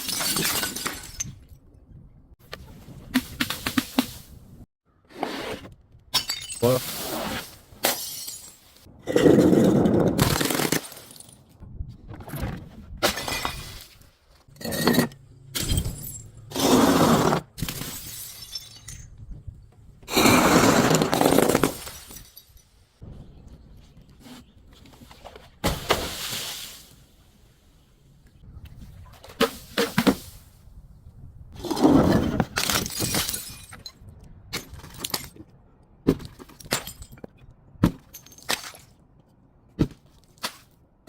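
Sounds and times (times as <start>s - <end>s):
glass breaking and crunching: 32.6s - 34.0s.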